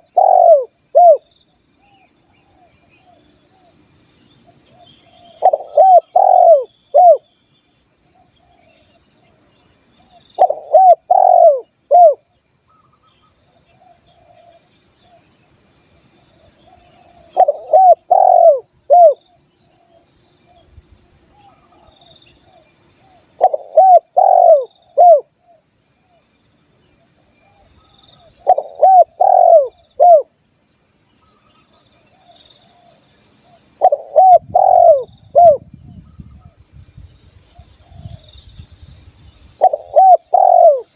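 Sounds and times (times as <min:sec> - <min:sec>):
dove cooing: 0:00.0 - 0:01.3, 0:05.2 - 0:07.2, 0:10.4 - 0:12.2, 0:16.8 - 0:19.2, 0:23.4 - 0:25.3, 0:28.2 - 0:30.3, 0:33.8 - 0:35.7, 0:39.6 - 0:40.9
high insect drone: 0:00.0 - 0:40.9.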